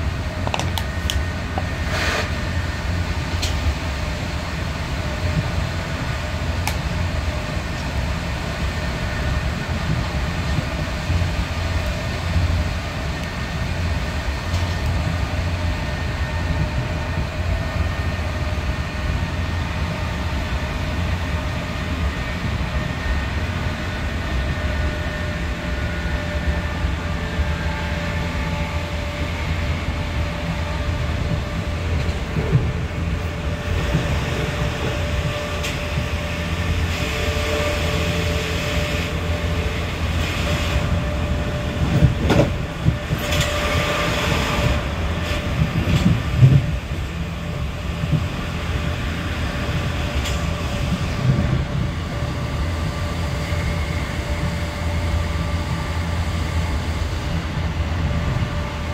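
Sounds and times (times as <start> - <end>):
wheels rumbling on rail: 0.0 - 58.9.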